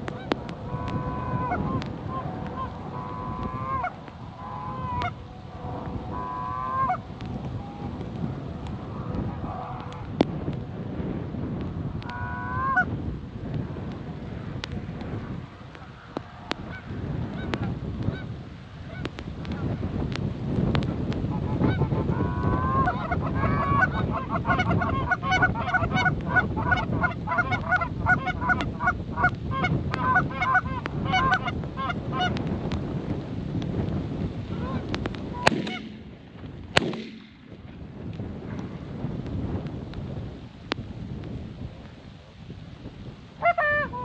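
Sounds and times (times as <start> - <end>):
low rumble: 0.0 - 25.1
sharp clicks: 34.9 - 38.2.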